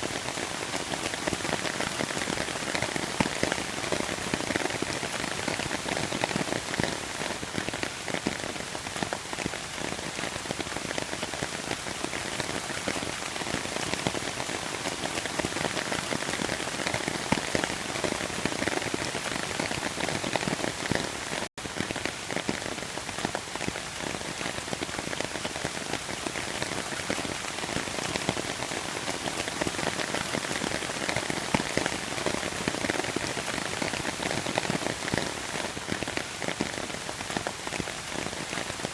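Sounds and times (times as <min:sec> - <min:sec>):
steady rain pattering: 0:00.0 - 0:38.9.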